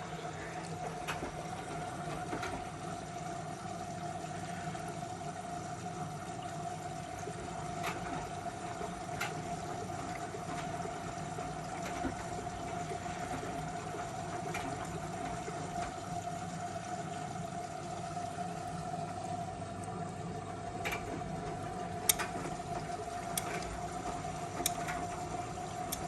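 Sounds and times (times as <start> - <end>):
washing machine whine: 0.0 - 26.0
water sloshing in drum: 0.0 - 26.0
light clicks: 22.1 - 22.4.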